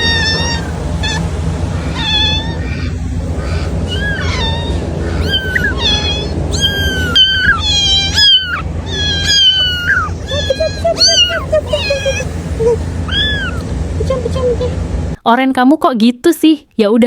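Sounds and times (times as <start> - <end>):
cat meowing: 0.0 - 12.4, 13.1 - 13.7.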